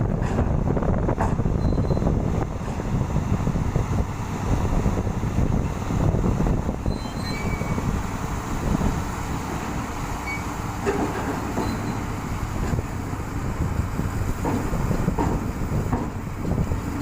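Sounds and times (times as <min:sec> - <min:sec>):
drilling rig rumbling: 0:00.0 - 0:17.0
faint short squeaks: 0:01.5 - 0:02.1, 0:06.8 - 0:07.9, 0:10.2 - 0:10.6, 0:11.5 - 0:12.1.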